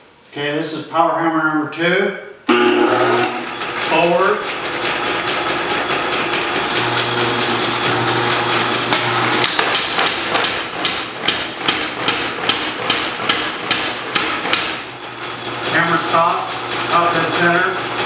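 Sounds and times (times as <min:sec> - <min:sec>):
power hammer ram striking: 0:08.9 - 0:14.9.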